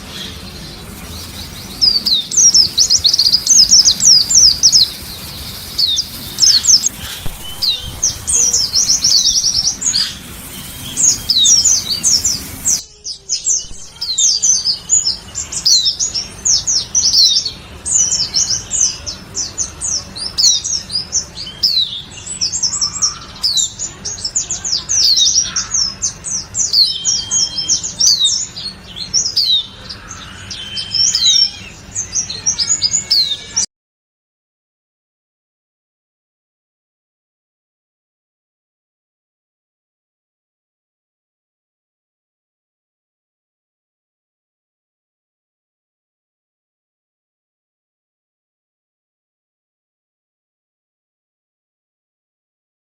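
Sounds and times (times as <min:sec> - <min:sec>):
bird chirping song: 0:00.0 - 0:33.7.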